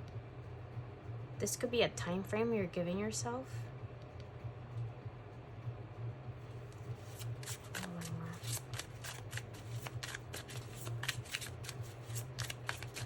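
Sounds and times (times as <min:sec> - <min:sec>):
steady low hum: 0:00.0 - 0:13.0
cards being shuffled: 0:06.8 - 0:13.0.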